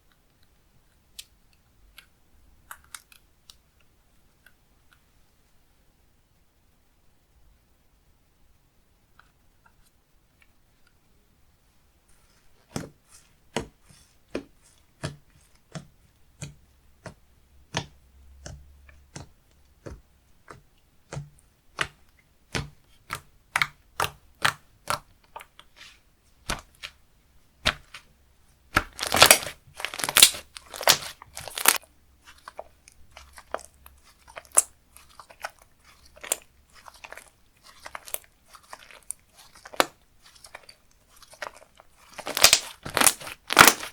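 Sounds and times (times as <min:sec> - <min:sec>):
slime popping and clicking: 0:28.7 - 0:31.8, 0:42.2 - 0:43.9.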